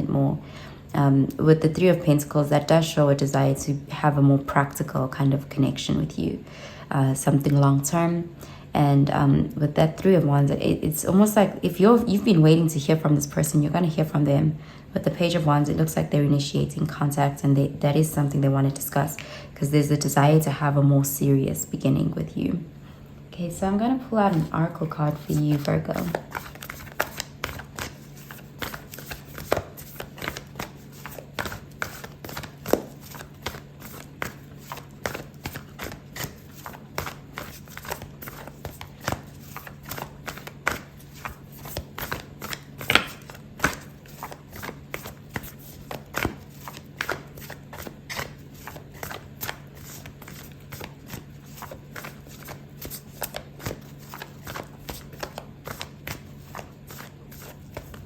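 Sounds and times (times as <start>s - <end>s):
low steady hum: 0.0s - 58.0s
cards being shuffled: 24.3s - 58.0s.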